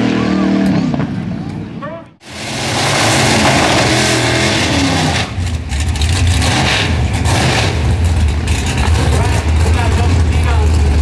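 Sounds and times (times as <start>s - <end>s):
drag racing engine revving: 2.2s - 11.0s.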